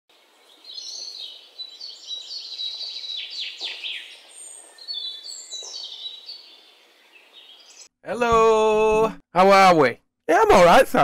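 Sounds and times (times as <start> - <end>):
small birds chirping: 0.1 - 8.0.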